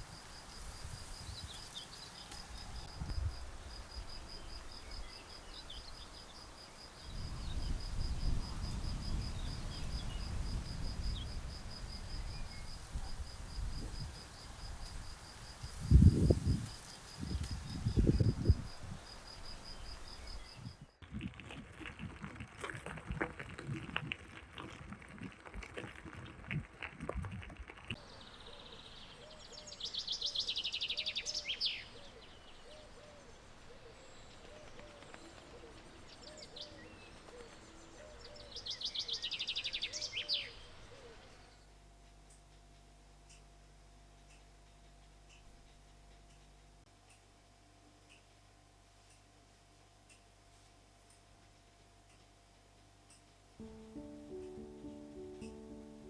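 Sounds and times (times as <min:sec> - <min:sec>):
insect chirping: 0:00.0 - 0:27.9.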